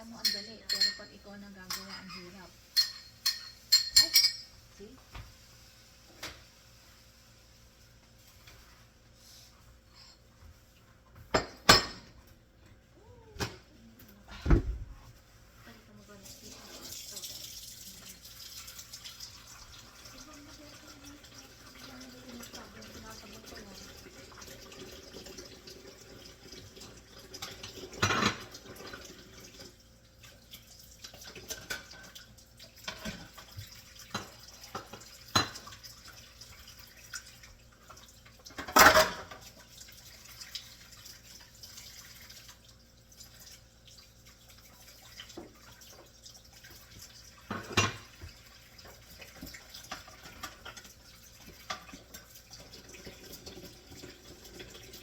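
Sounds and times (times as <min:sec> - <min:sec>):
dishes and utensils clattering: 0:00.0 - 0:04.7, 0:11.1 - 0:12.3, 0:21.2 - 0:29.4, 0:31.0 - 0:36.7, 0:37.8 - 0:39.7, 0:47.4 - 0:55.0.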